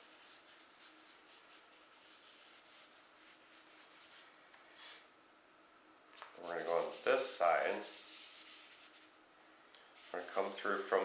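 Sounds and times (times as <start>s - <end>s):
charcoal scratching on paper: 0.0s - 4.2s, 6.3s - 9.1s, 10.0s - 11.0s.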